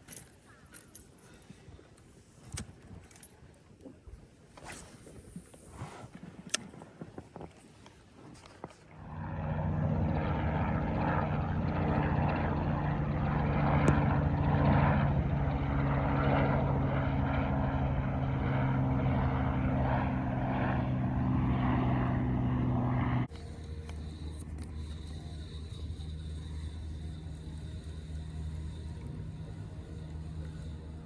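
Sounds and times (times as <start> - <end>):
boat motor droning: 8.9 - 31.0.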